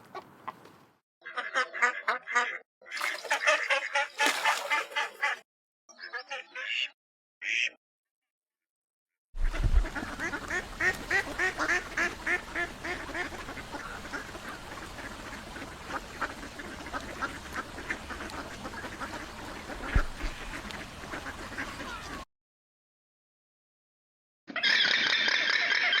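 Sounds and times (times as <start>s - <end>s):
ducks quacking: 1.3s - 5.4s, 9.4s - 22.2s.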